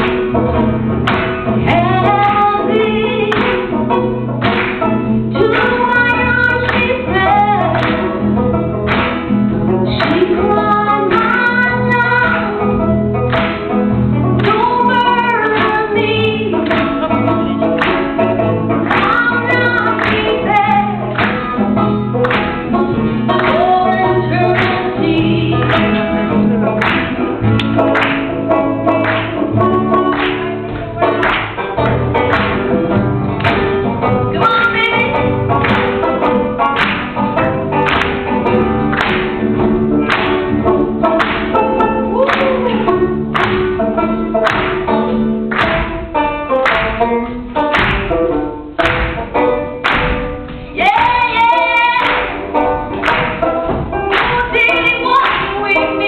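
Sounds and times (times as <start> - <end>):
strummed acoustic guitar: 0.0 - 56.0
person singing: 1.6 - 4.3, 14.4 - 21.4, 22.7 - 26.4, 40.6 - 44.2, 50.8 - 52.8, 53.4 - 56.0.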